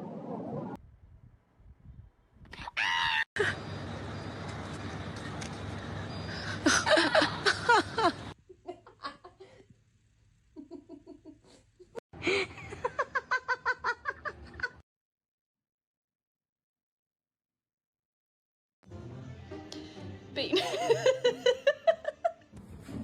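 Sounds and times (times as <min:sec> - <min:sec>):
person laughing hard: 0:06.6 - 0:09.4, 0:12.2 - 0:14.8, 0:20.6 - 0:22.4.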